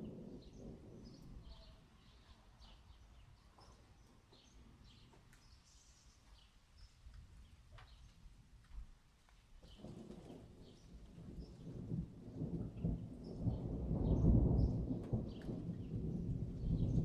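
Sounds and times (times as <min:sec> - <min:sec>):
low rumble of thunder: 0:00.0 - 0:05.2, 0:09.6 - 0:17.0.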